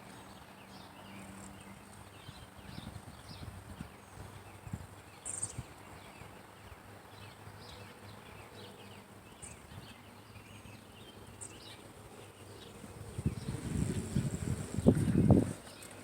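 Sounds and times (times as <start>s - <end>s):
faint outdoor ambience: 0.0s - 16.0s.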